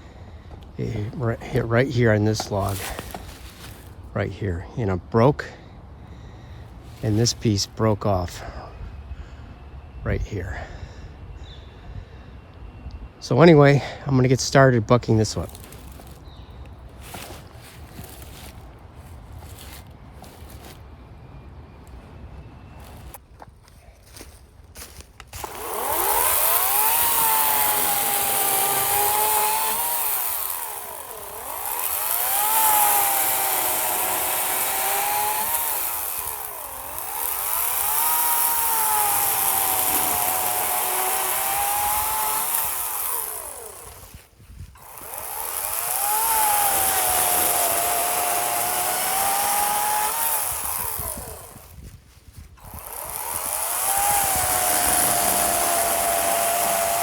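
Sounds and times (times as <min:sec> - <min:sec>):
electric chainsaw cutting log: 0:00.9 - 0:04.0, 0:15.1 - 0:16.3, 0:17.0 - 0:18.6, 0:25.3 - 0:51.8, 0:52.6 - 0:57.0.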